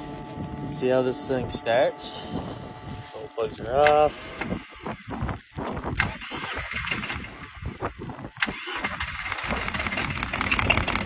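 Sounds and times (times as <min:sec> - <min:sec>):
engine cranking and starting: 0:03.8 - 0:11.0.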